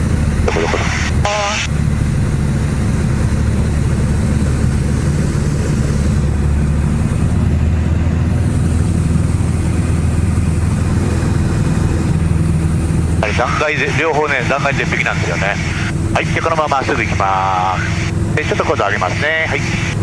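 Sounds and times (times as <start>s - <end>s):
small plane engine droning: 0.0s - 20.0s.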